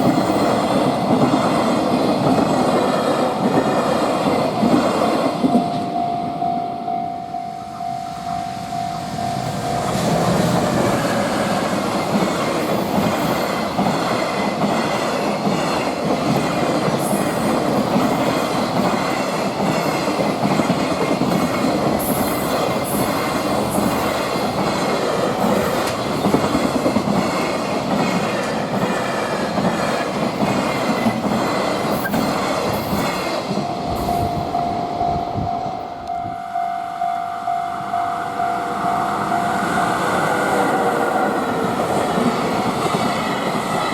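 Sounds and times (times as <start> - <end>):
level crossing warning bell: 5.2 - 14.6, 33.4 - 42.8
train wheels squealing: 9.0 - 11.9, 31.9 - 33.3
freight train wheels clattering: 9.9 - 34.8.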